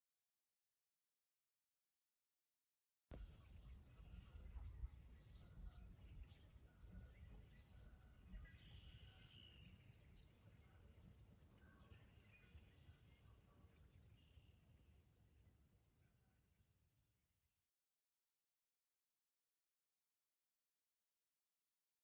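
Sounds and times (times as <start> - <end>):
faint bird chirps: 3.1 - 14.6.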